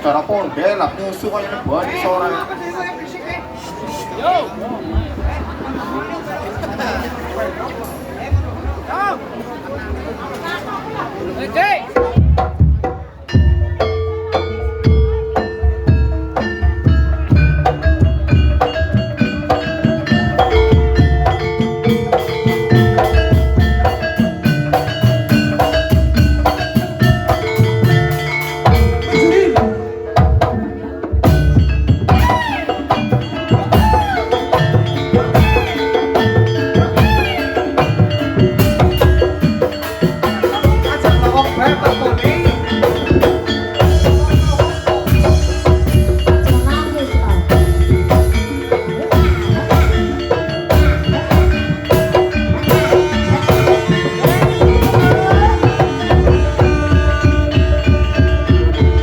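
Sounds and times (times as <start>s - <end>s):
tuned percussion melody: 11.6s - 59.0s
low hand-drum strokes: 12.1s - 59.0s.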